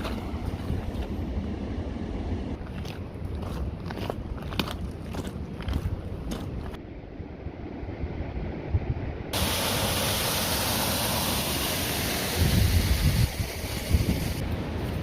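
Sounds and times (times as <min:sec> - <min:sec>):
steady loud hiss: 0:09.4 - 0:15.0
wind buffeting microphone: 0:12.3 - 0:15.0.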